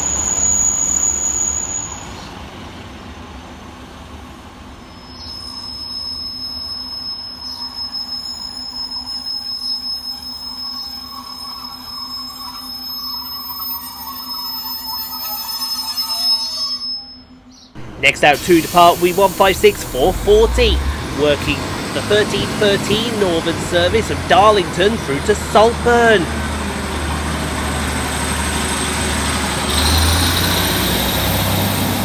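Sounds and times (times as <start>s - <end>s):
train low hum: 0.0s - 16.4s, 17.0s - 29.9s
train pulling away: 0.0s - 16.8s, 17.4s - 32.0s
high-pitched squeal: 5.1s - 27.0s.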